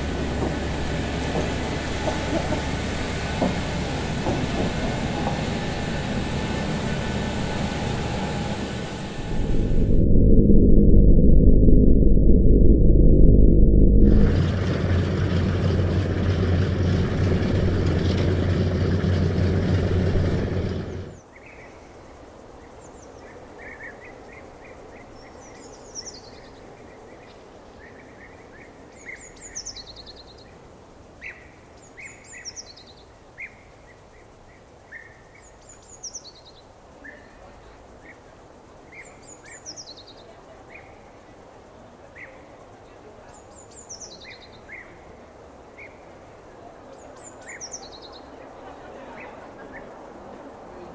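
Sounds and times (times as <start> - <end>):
loud low drone: 5.0 - 21.2.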